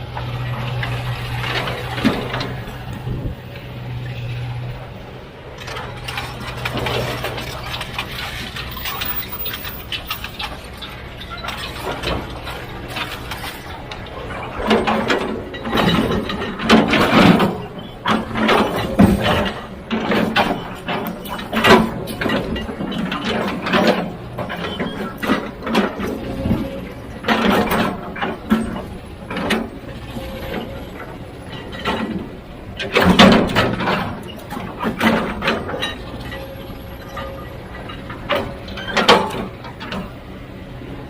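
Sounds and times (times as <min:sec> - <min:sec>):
low machinery hum: 0:00.0 - 0:41.0
metallic clanks and scrapes: 0:05.6 - 0:40.2.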